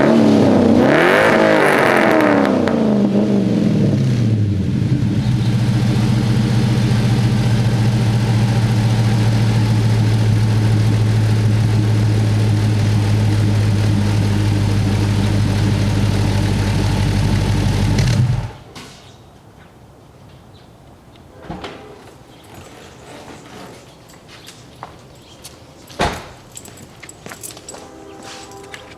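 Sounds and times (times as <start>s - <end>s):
car engine idling: 2.8s - 18.6s.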